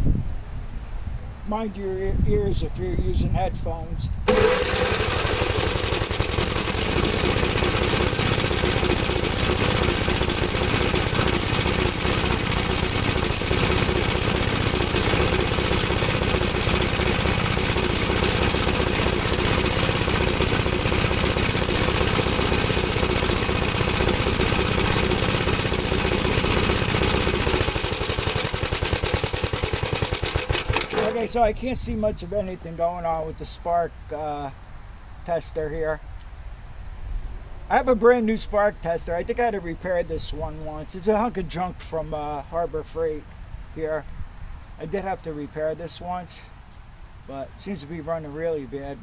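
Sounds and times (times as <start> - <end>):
engine running roughly: 4.3 - 31.6
engine misfiring and popping: 4.3 - 31.8.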